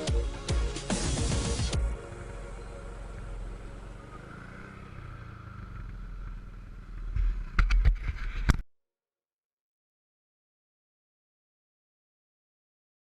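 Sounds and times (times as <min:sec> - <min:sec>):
dirt bike engine running: 0:01.1 - 0:08.1.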